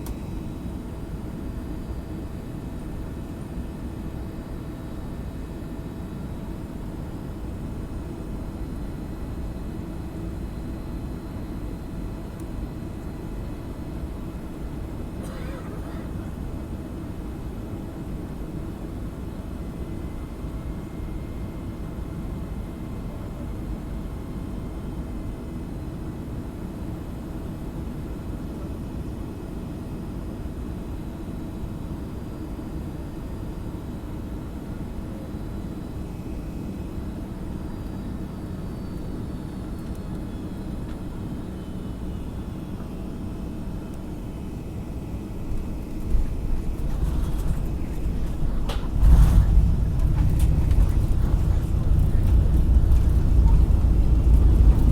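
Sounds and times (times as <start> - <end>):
airplane cabin engine rumble: 14.5 - 17.5, 41.8 - 54.9
jolt and rumble: 46.0 - 54.9.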